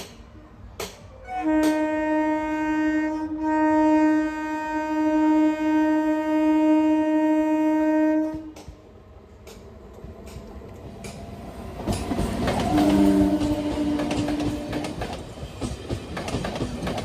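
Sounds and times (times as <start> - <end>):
train horn blast: 1.1 - 8.7, 12.6 - 15.0.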